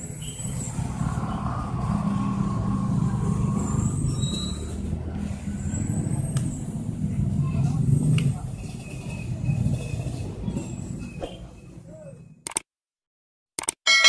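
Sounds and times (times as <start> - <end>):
heavy vehicle engine running: 0.0 - 11.1.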